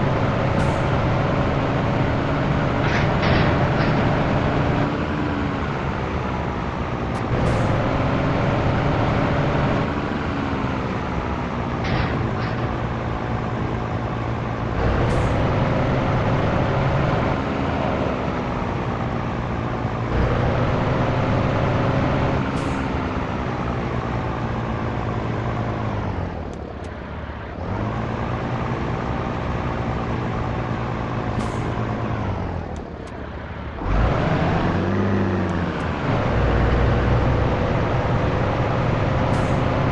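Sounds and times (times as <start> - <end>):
truck diesel engine revving: 0.0 - 39.9.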